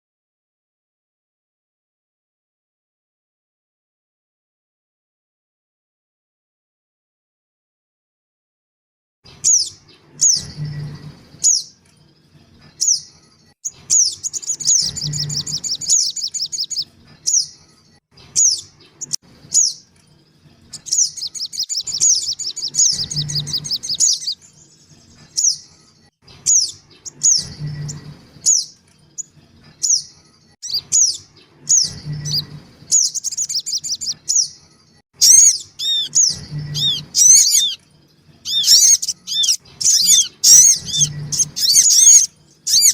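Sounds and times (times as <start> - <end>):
bird chirps and chattering: 9.3 - 11.8, 12.8 - 17.6, 18.2 - 19.9, 20.7 - 25.7, 26.4 - 34.6, 35.2 - 37.8, 38.4 - 42.9.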